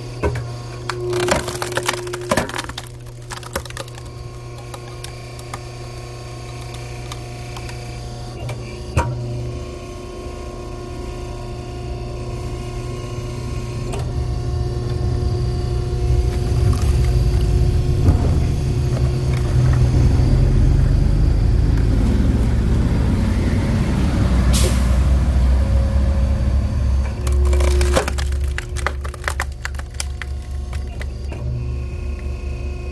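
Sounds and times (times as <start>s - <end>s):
machine motor humming: 14.0s - 24.0s.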